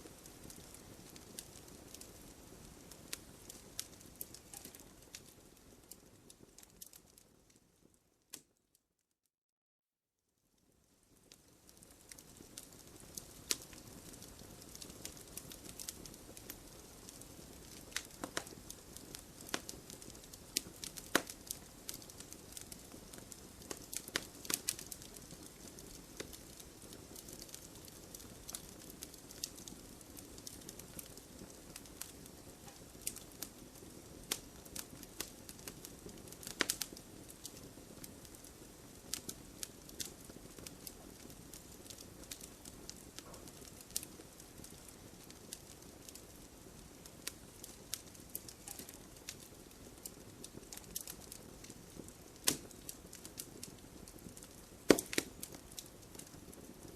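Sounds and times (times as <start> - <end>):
campfire crackling and popping: 0.0 - 8.5, 10.6 - 56.9.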